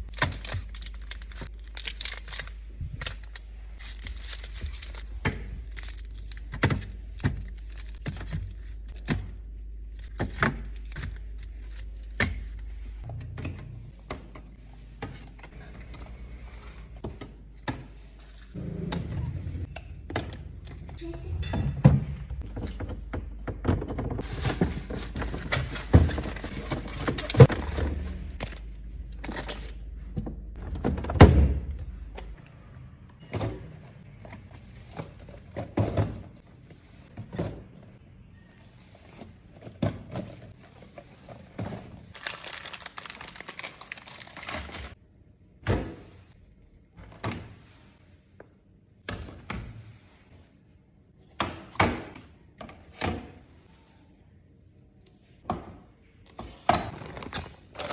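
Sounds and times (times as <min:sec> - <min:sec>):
knocks and thunks on shelves: 0:17.0 - 0:18.2, 0:18.8 - 0:28.4, 0:30.1 - 0:32.4, 0:33.2 - 0:36.5, 0:45.6 - 0:46.3, 0:51.3 - 0:53.4, 0:55.4 - 0:57.0
plastic rustling: 0:23.9 - 0:29.8, 0:40.2 - 0:45.0.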